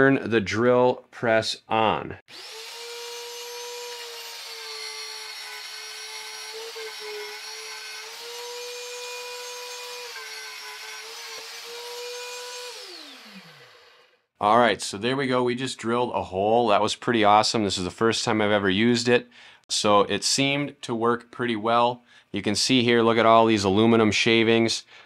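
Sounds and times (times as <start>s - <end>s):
motor winding down: 2.3s - 4.6s, 11.5s - 14.2s.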